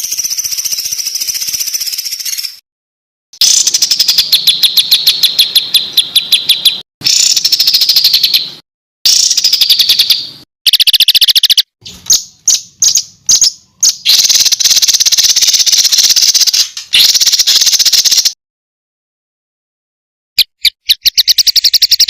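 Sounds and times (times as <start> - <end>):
bird sharp chips: 0.0 - 2.6, 3.4 - 18.4, 20.4 - 22.0
songbird rapid harsh notes: 3.4 - 18.4, 20.4 - 22.0.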